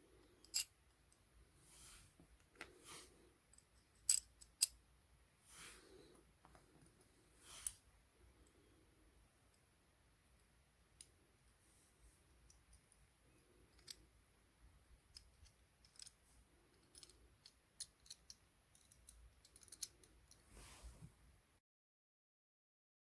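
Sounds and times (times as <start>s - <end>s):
small parts clicking: 0.3s - 1.2s, 3.5s - 4.8s, 13.6s - 14.1s, 15.1s - 20.4s.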